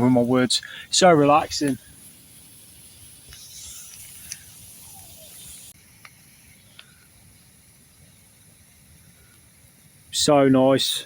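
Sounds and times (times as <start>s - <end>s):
campfire hissing: 0.0s - 11.0s
fire crackling pops: 0.0s - 11.0s.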